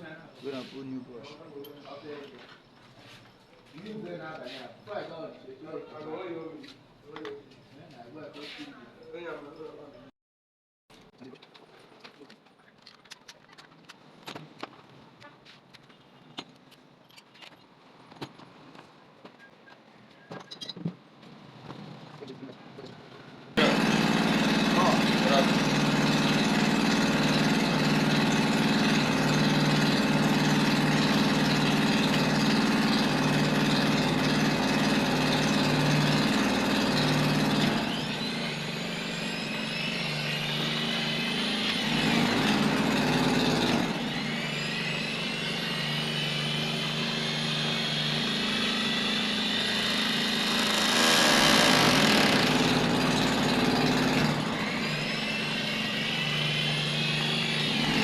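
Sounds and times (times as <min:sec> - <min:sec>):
angle grinder motor whine: 0:23.6 - 0:58.0.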